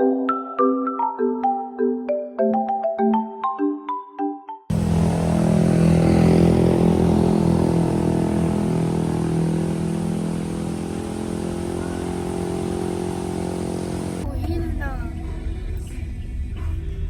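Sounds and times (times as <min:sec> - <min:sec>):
vehicle engine humming: 0:04.7 - 0:14.7.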